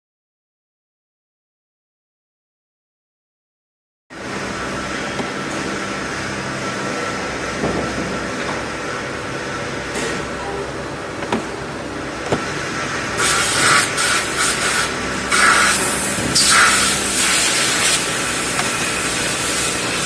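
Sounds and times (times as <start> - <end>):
cnc machine humming: 4.1 - 20.0
short bursts of hissing: 13.2 - 18.2.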